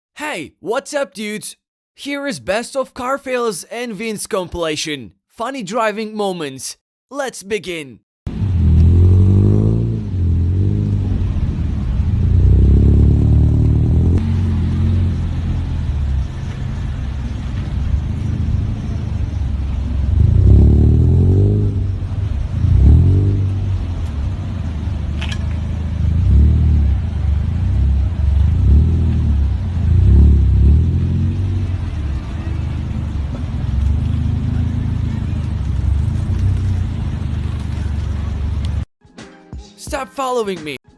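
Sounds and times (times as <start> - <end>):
car engine revving: 8.3 - 38.9.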